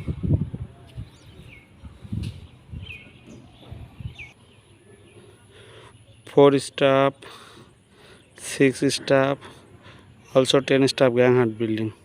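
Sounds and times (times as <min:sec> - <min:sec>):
small bird chirping: 0:00.8 - 0:06.4.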